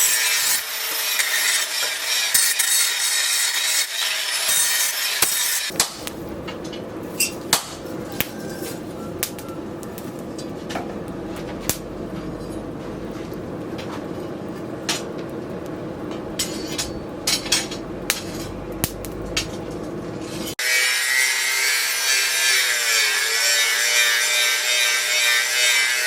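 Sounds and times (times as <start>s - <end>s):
low hum: 9.5s - 20.6s.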